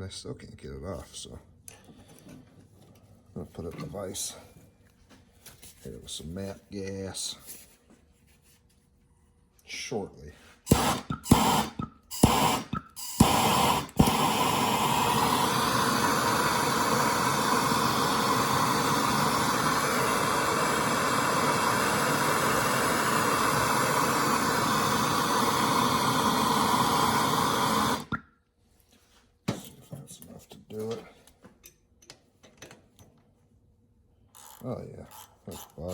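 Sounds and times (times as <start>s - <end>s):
gas torch flame hissing: 10.7s - 28.2s
torch igniter clicks: 10.7s - 28.2s.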